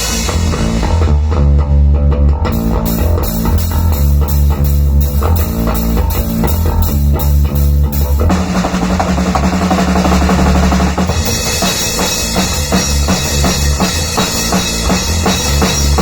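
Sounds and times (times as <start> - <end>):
cymbal strikes: 0.0 - 1.2
bass guitar low notes: 0.0 - 16.0
rock drumming: 0.0 - 16.0.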